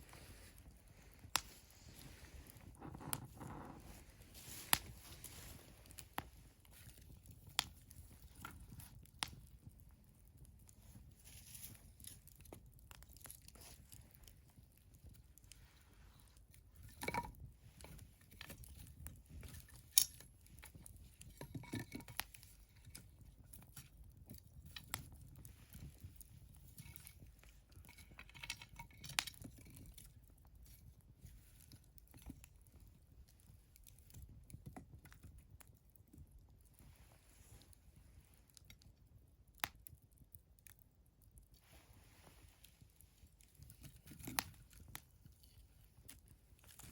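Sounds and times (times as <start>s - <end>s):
wood fire crackling: 0.0s - 46.9s.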